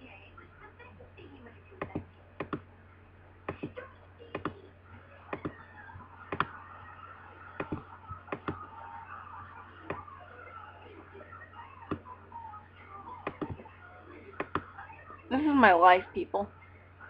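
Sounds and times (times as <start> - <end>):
faint background murmur: 0.0 - 17.0
sharp clicks and taps: 1.8 - 2.6, 7.6 - 8.6.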